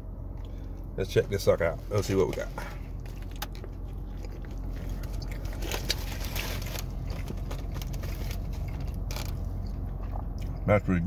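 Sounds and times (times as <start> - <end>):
biting and chewing sandwich: 1.9 - 10.7.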